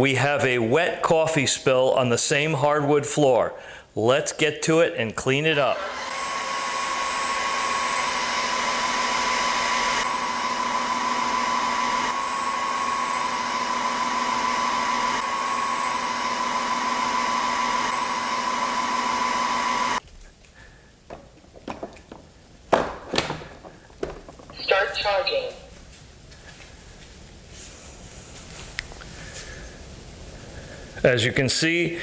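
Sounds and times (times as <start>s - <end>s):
vacuum mop whining: 5.4s - 20.0s, 20.6s - 25.6s.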